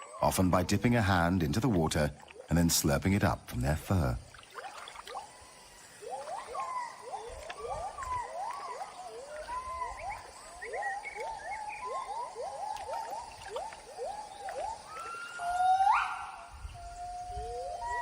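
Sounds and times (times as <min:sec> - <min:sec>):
gibbons whooping: 0:06.0 - 0:18.0.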